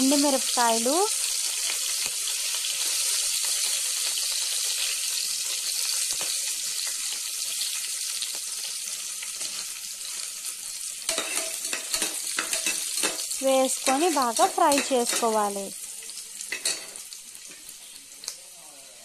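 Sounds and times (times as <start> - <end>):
chillies sizzling in hot fat: 0.0 - 19.0
spatula stirring and scraping pot: 11.1 - 14.0.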